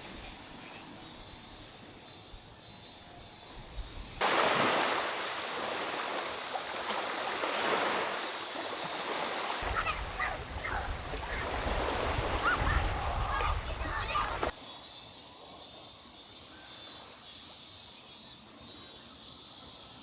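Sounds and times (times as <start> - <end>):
high insect drone: 0.0 - 20.0
ocean waves washing ashore: 4.2 - 14.6
wind rumble on microphone: 9.6 - 14.5.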